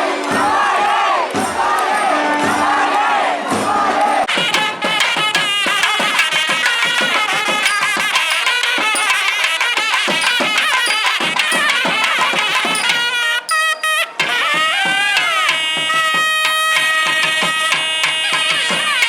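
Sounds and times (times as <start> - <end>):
drum strokes: 0.0 - 19.0
double-reed pipes melody: 4.2 - 19.0.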